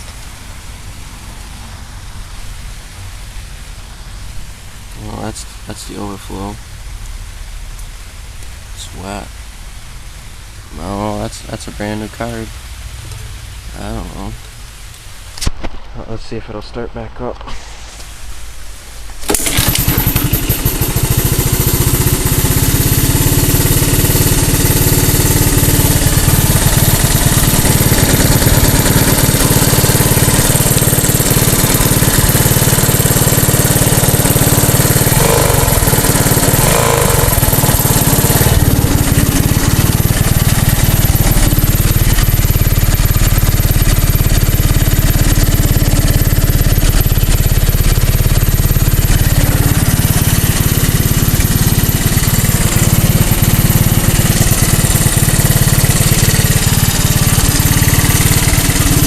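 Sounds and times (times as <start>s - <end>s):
small engine starting and running: 19.2s - 59.0s.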